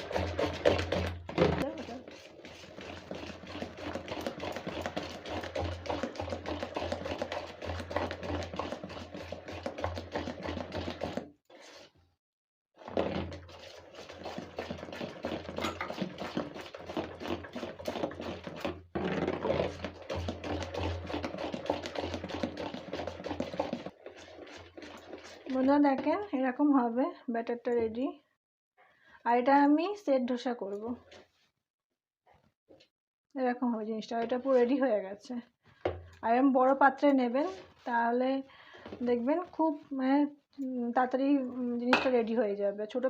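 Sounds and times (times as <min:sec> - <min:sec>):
batter beaten by hand in bowl: 0:00.0 - 0:11.4, 0:12.8 - 0:26.3, 0:41.6 - 0:42.5.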